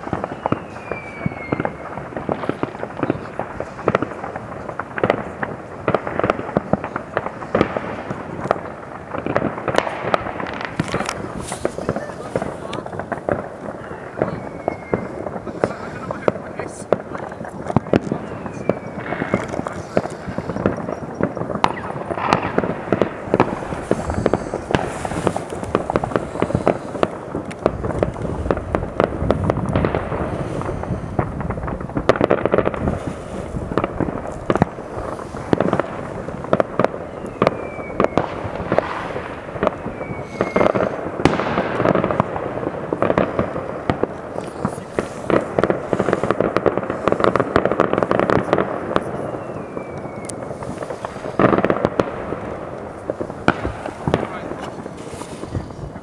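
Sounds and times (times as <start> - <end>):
falling firework whistles: 0.0 - 4.8, 9.1 - 16.4, 17.9 - 42.3, 44.3 - 52.2
fireworks bangs and pops: 0.0 - 56.0.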